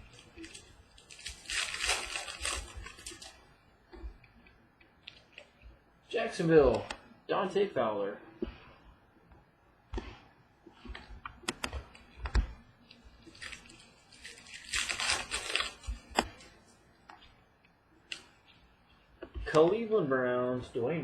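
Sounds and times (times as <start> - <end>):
cards rustling: 0.0 - 3.4, 10.0 - 17.4.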